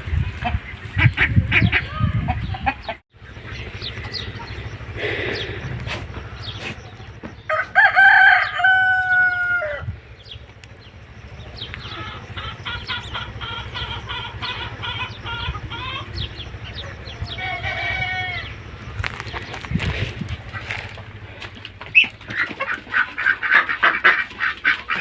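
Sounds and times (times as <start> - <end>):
chickens clucking: 0.0 - 25.0
rooster crowing: 7.4 - 10.0, 17.1 - 18.7.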